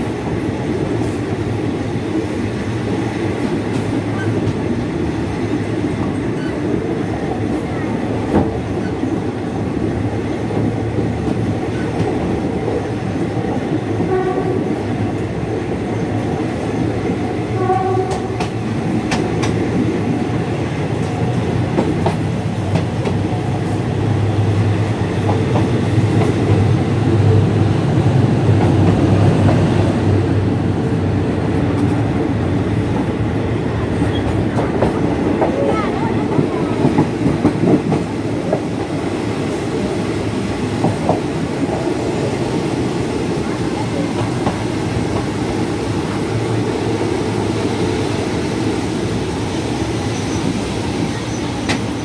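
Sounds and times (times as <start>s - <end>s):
train wheels rumbling on track: 0.0s - 52.0s
faint train horn blasts: 14.0s - 14.8s, 17.5s - 18.5s.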